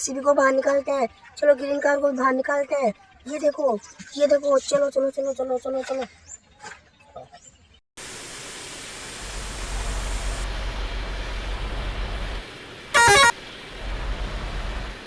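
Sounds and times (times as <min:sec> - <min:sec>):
car horn honk: 0:13.0 - 0:13.4.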